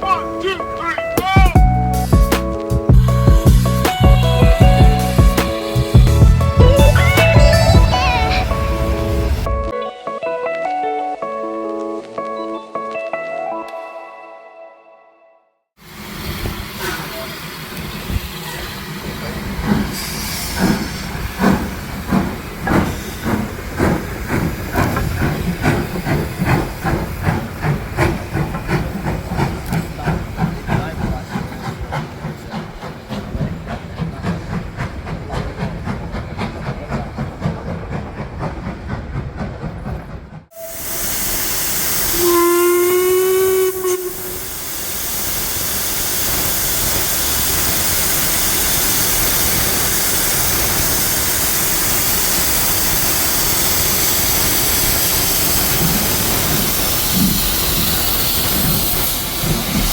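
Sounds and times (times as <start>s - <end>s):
steam locomotive chuffing: 0.0s - 9.7s, 15.8s - 59.9s
steam hissing: 3.0s - 9.5s, 15.8s - 38.5s, 40.6s - 59.9s
steam whistle blast: 40.6s - 46.4s.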